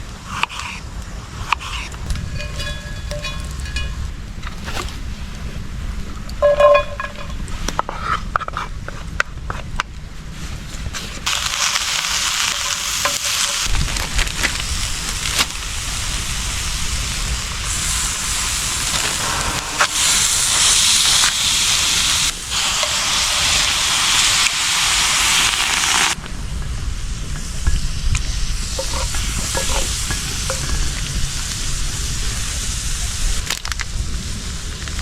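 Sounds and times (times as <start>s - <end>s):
meat sizzling in a pan: 11.3s - 26.2s, 28.3s - 35.0s.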